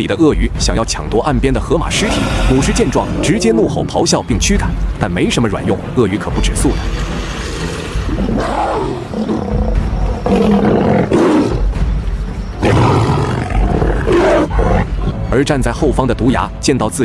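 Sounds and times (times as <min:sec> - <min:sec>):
background music: 0:00.0 - 0:17.0
lioness roaring and snarling: 0:01.9 - 0:03.9, 0:06.8 - 0:11.7, 0:12.6 - 0:15.2.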